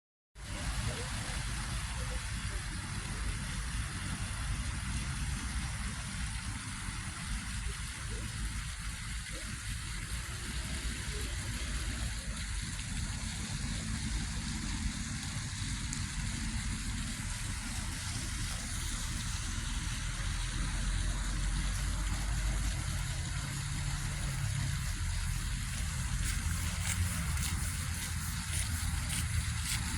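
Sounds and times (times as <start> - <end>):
vehicle engine rumbling: 10.4 - 29.9.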